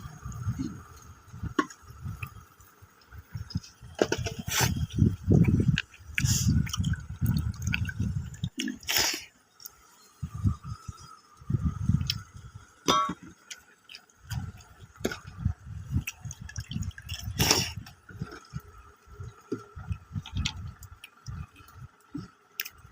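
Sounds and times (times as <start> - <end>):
wet chewing and smacking: 4.7 - 9.0, 13.4 - 22.8
sharp mouth clicks: 5.4 - 9.2, 12.0 - 12.3.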